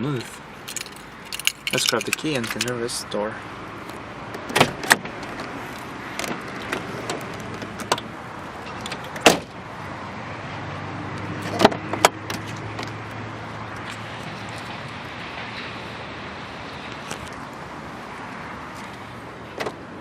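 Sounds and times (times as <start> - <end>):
car keys jangling: 0.6 - 2.8
car door clunk: 4.3 - 5.5, 6.2 - 9.6, 19.5 - 19.8
car door opening and shutting: 4.3 - 9.6, 11.4 - 13.0, 19.4 - 19.9.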